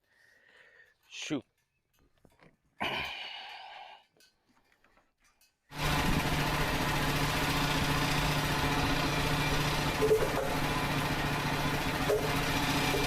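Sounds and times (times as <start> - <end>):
small gasoline engine running: 5.7 - 13.0.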